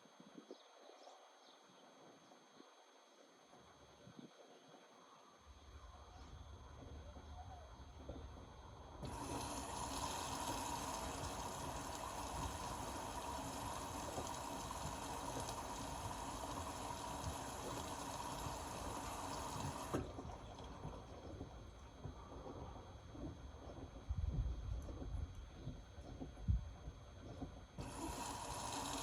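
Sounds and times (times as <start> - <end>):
water rushing into washing machine: 9.0 - 23.8, 27.8 - 29.0.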